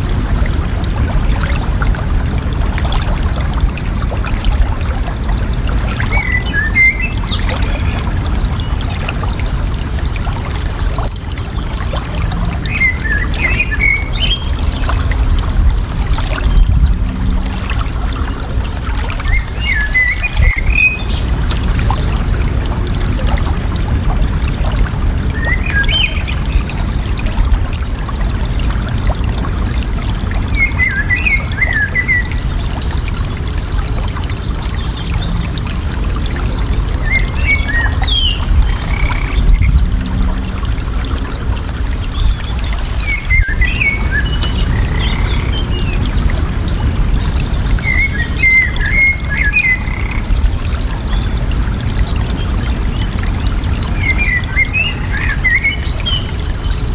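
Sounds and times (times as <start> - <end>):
water babbling: 0.0 - 56.9
small birds chirping: 37.1 - 39.8, 41.9 - 50.3
bird warbling: 38.1 - 39.8.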